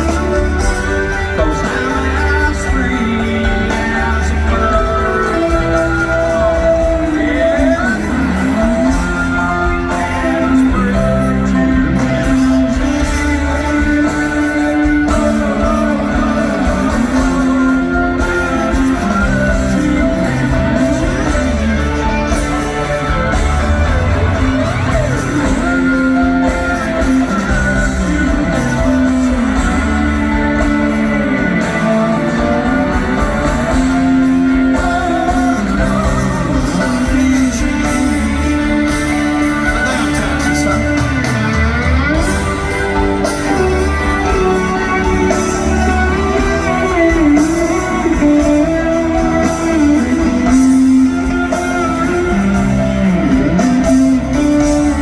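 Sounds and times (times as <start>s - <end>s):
gliding electric guitar: 0.0s - 55.0s
rock band playing slow song: 0.0s - 55.0s.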